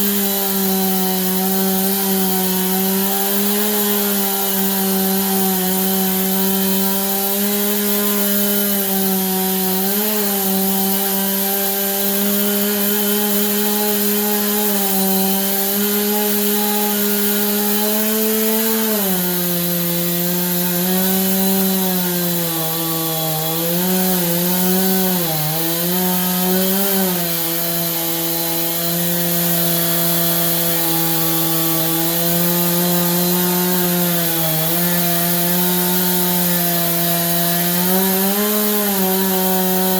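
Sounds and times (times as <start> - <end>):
chainsaw ripping log: 0.0 - 39.9.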